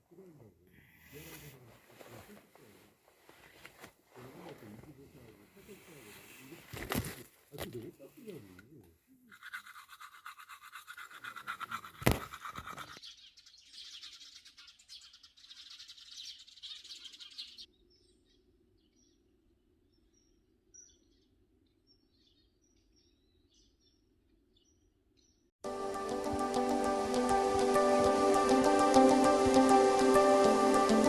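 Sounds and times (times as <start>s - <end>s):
faint bird chirps: 12.7s - 25.5s.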